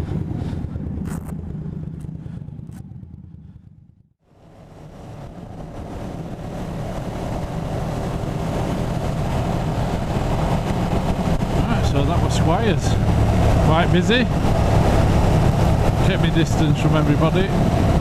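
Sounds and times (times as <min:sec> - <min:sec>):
motorcycle engine running: 0:00.0 - 0:04.0
wind noise: 0:00.0 - 0:18.0.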